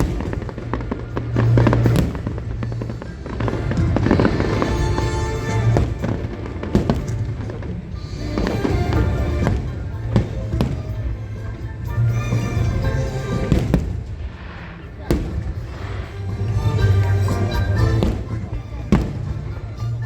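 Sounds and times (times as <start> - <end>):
fireworks bursting and crackling: 0.0 - 20.0
music playing: 0.0 - 20.0.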